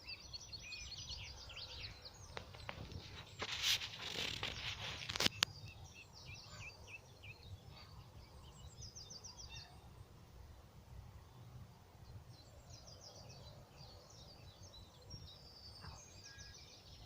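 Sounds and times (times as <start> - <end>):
small birds chirping: 0.0 - 10.6, 11.2 - 17.0
rustling: 2.3 - 5.5.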